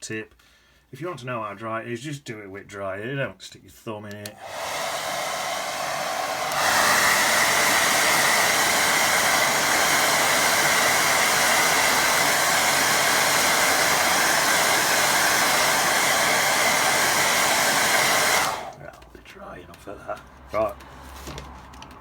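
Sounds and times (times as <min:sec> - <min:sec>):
hair dryer blowing: 0:04.3 - 0:18.8.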